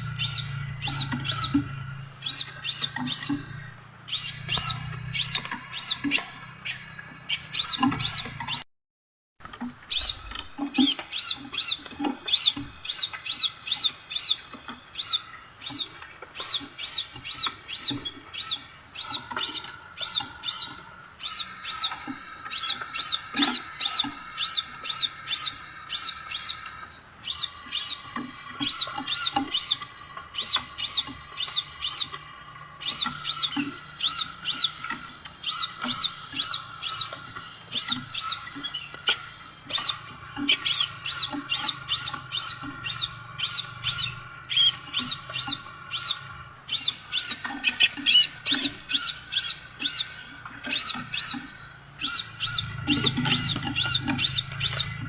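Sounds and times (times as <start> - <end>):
bird chirping: 0.0 - 8.6, 9.4 - 55.0.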